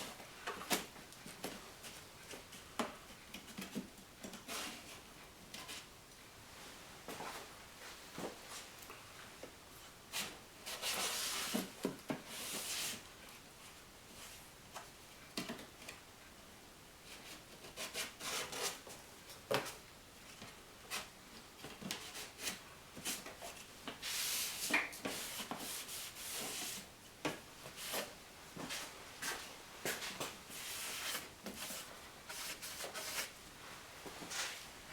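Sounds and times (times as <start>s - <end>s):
rubbing and scraping: 30.5s - 33.4s.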